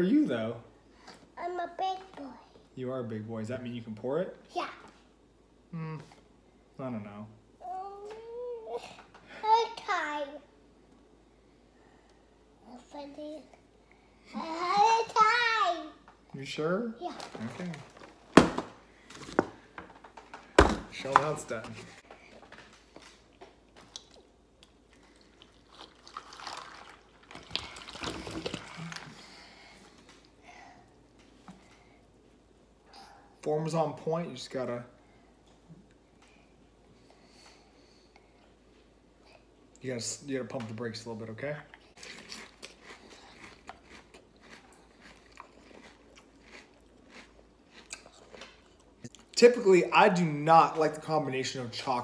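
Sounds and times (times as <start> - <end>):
person chewing crunchy cereal: 23.3 - 29.3, 42.0 - 49.3
milk pouring into cereal bowl: 25.1 - 29.2.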